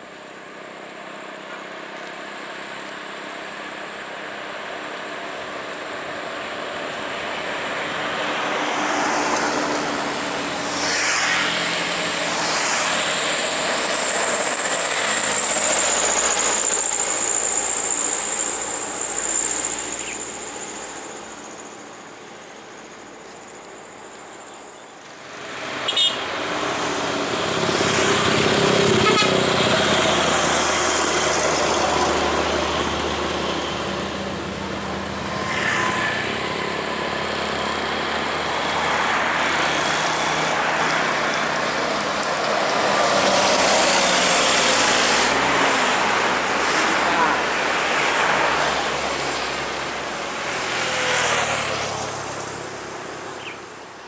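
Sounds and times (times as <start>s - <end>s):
high whine: 0.1s - 50.8s
heavy trucks passing: 1.7s - 24.0s, 25.0s - 54.0s
short sharp horn toot: 25.8s - 26.3s, 28.9s - 29.5s.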